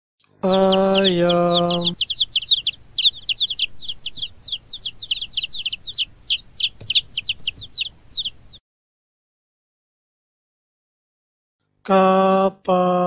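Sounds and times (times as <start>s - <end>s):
baby chicks peeping: 0.2s - 8.6s.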